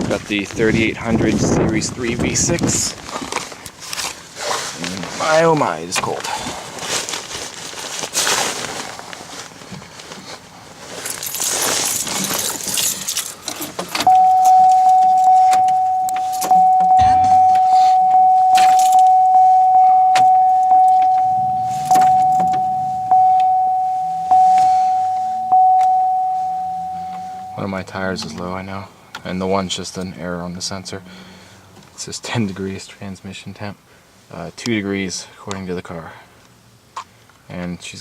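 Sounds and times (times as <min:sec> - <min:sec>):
keys jangling: 0:11.0 - 0:17.2, 0:18.5 - 0:19.2
car warning chime: 0:14.0 - 0:28.7.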